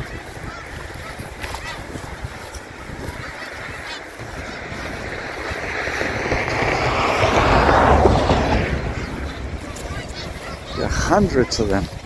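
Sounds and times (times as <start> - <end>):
vehicle passing by: 4.1 - 12.0.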